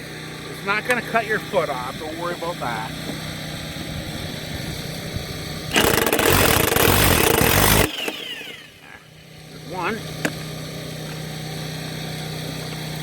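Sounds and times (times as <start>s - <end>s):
generator humming: 0.0s - 13.0s
impact wrench hammering: 5.7s - 8.5s.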